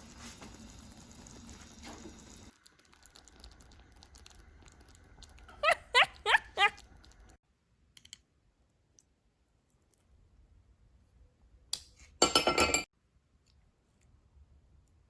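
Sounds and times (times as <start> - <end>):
tableware clinking: 12.2 - 12.9.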